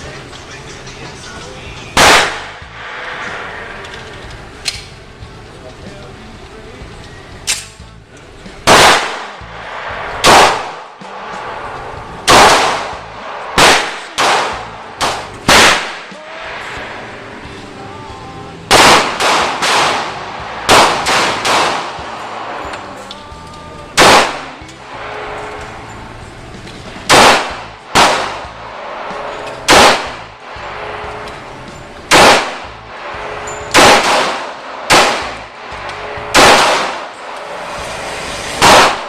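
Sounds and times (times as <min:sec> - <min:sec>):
gunshots: 0:01.9 - 0:05.0, 0:08.6 - 0:17.7, 0:18.7 - 0:23.0, 0:23.9 - 0:25.8, 0:27.0 - 0:39.0.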